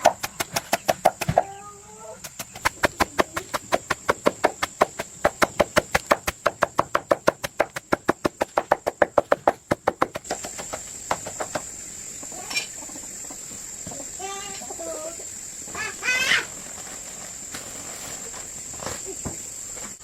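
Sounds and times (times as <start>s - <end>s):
rapid knocking on wood: 0.0s - 1.4s, 2.2s - 11.7s
high insect drone: 0.0s - 20.0s.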